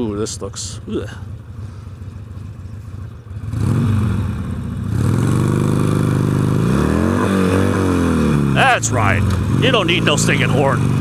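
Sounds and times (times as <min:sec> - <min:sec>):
motorcycle engine revving: 0:00.7 - 0:11.0.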